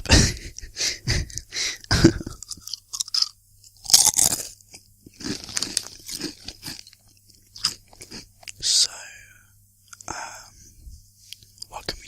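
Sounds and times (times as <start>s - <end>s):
crunching and chewing crisps: 2.2s - 8.6s.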